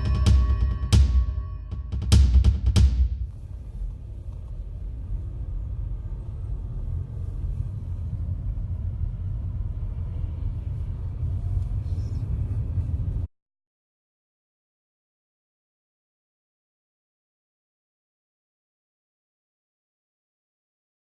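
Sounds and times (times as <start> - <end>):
vehicle road and engine rumble: 3.1 - 13.3.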